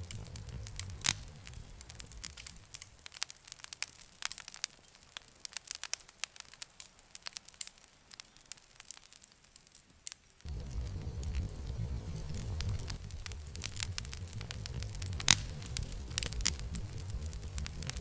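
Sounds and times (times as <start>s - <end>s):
low rumble: 0.0s - 2.9s, 10.5s - 18.0s
wood fire crackling and popping: 0.0s - 18.0s.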